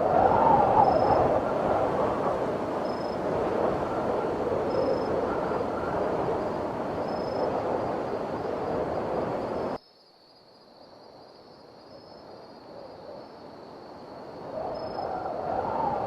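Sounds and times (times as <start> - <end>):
blizzard wind blowing: 0.0 - 9.8, 13.4 - 16.0.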